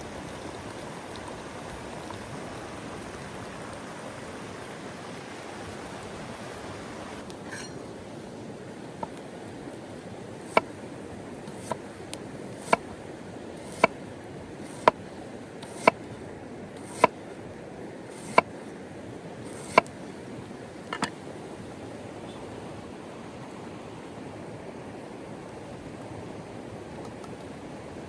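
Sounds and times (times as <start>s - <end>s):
sharp chopping strikes: 13.7s - 14.0s, 15.7s - 16.0s.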